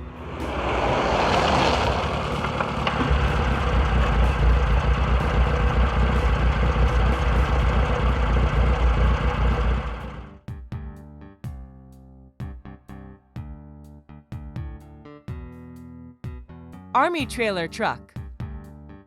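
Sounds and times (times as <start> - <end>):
heavy truck engine rumbling: 0.0 - 10.4.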